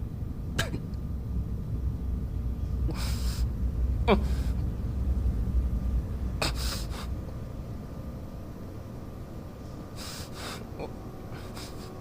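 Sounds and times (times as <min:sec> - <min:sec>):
low steady rumble: 0:00.0 - 0:12.0
person crying: 0:04.1 - 0:04.4.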